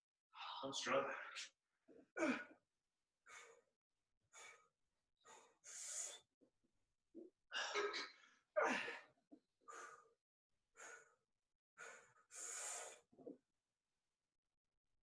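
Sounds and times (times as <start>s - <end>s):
person grunting: 2.2s - 2.5s
person breathing hard: 3.3s - 3.7s, 4.3s - 6.3s, 9.7s - 10.2s, 10.8s - 11.2s, 11.8s - 13.2s.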